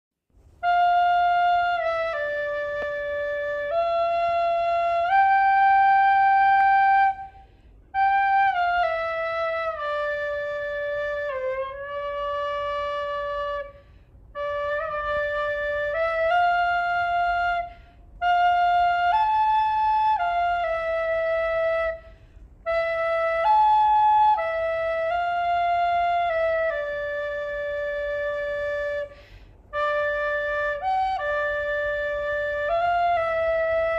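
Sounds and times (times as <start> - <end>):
solo flute melody: 0.3 - 33.9.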